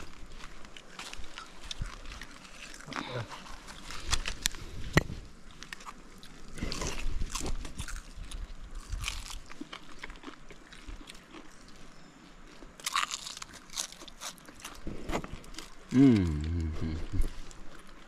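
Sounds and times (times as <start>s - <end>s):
crunchy tortilla chewing: 0.0s - 18.0s.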